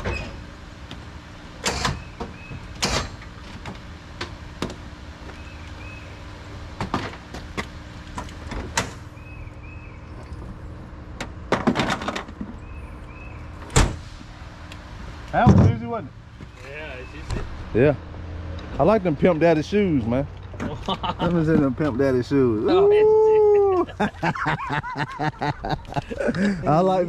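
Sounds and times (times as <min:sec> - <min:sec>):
vehicle engine idling: 0:00.0 - 0:11.5, 0:12.2 - 0:27.0
sharp metal knocks and clunks: 0:01.6 - 0:04.8, 0:11.2 - 0:12.6, 0:15.4 - 0:16.6.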